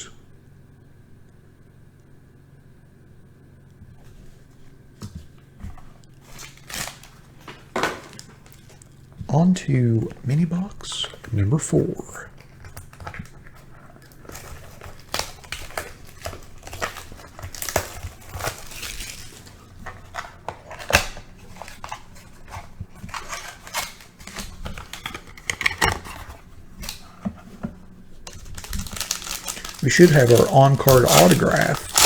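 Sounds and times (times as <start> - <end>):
packaging crinkling and tearing: 5.2 - 32.0.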